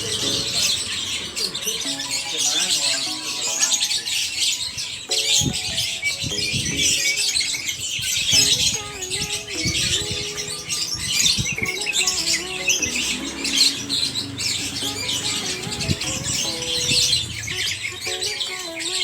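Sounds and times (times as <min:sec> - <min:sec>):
birds chirping and twittering: 0:00.0 - 0:19.0
music with wavering melody: 0:00.0 - 0:19.0.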